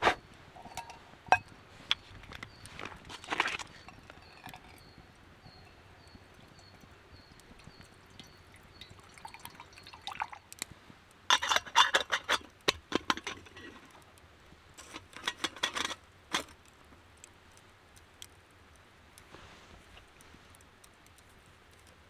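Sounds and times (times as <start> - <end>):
small hard objects clattering: 0.0 - 5.6.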